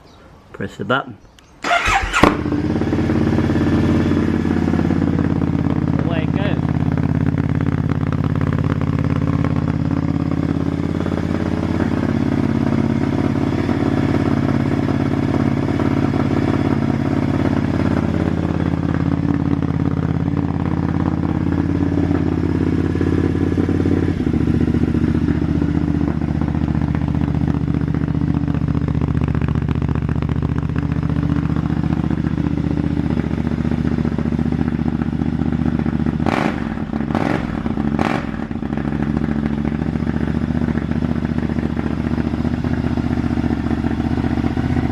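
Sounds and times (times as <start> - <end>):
motorcycle engine idling: 1.6 - 44.9.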